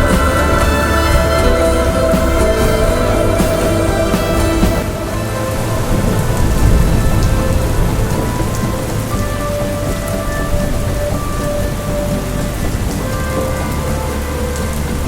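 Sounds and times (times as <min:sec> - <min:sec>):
heavy rain: 0:00.0 - 0:15.0
rolling thunder: 0:00.0 - 0:15.0
soft music with held notes: 0:00.0 - 0:15.0.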